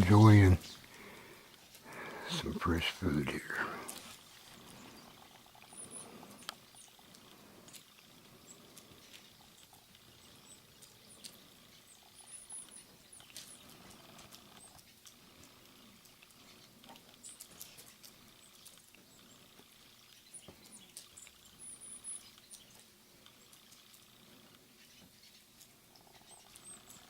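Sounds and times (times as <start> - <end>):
woodpecker tapping: 1.9 - 7.8
faint high chirps: 20.3 - 22.8.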